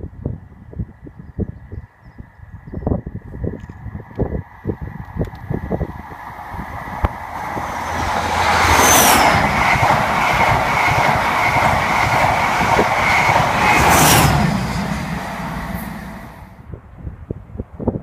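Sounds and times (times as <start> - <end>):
train passing at speed: 4.3 - 16.7.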